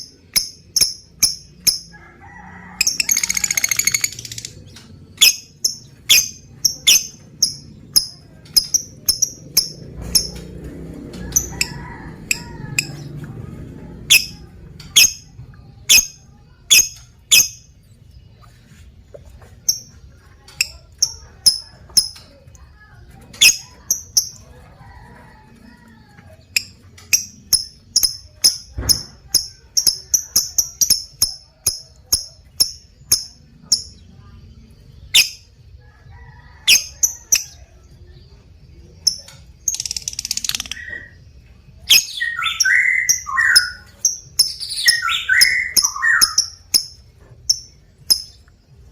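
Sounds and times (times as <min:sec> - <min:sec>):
lovebird chirping: 0:00.0 - 0:01.9, 0:02.8 - 0:10.4, 0:14.1 - 0:15.3, 0:15.9 - 0:17.7, 0:23.4 - 0:24.4, 0:26.5 - 0:34.3, 0:35.0 - 0:35.5, 0:39.0 - 0:48.9
lovebird harsh chattering call: 0:02.8 - 0:04.5, 0:14.1 - 0:14.4.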